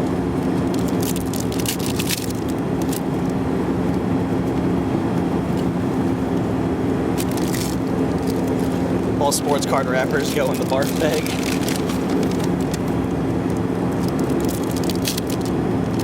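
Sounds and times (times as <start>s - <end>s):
airplane cabin drone: 0.0s - 16.0s
foil wrapper crinkling: 9.6s - 13.0s, 14.0s - 15.5s.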